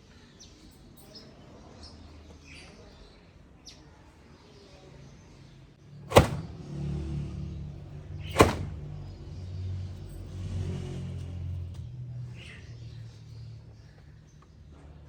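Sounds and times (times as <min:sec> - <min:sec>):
sharp knocks: 0:06.1 - 0:06.6, 0:08.3 - 0:08.9.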